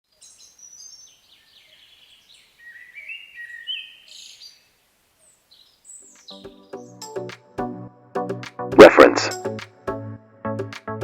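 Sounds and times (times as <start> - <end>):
faint background hiss: 0.1 - 6.2
bird chirps: 0.1 - 7.0.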